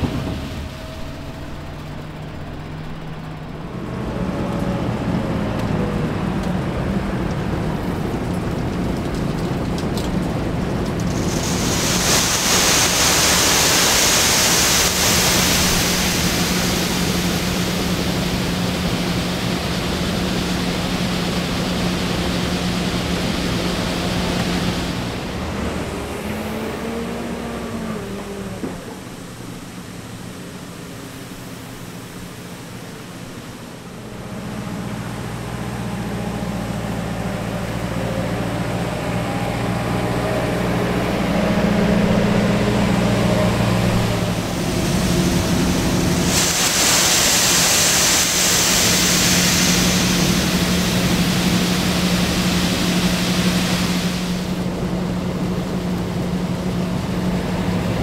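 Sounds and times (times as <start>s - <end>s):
diesel machinery engine drone: 0.0s - 58.0s
loud hissing rush: 11.0s - 27.0s, 36.6s - 55.2s.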